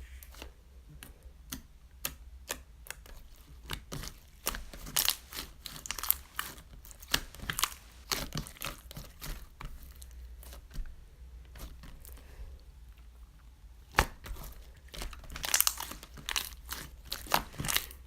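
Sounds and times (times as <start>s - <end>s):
crinkling and rustling: 3.0s - 12.3s, 14.0s - 18.0s.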